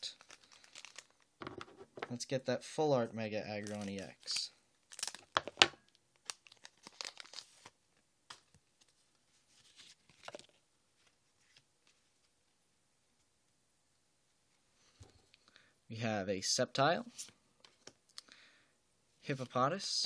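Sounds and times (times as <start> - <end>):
wrapper crinkling: 0.0 - 1.3, 3.6 - 8.4
cards rustling and clicking: 3.6 - 7.7, 9.6 - 11.6
foil pack tearing: 6.3 - 7.6.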